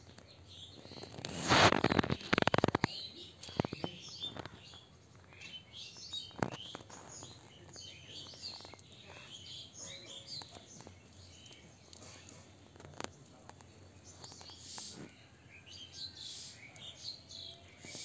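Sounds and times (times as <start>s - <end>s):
birds chirping: 0.0s - 18.0s
faint clicks: 10.3s - 14.9s.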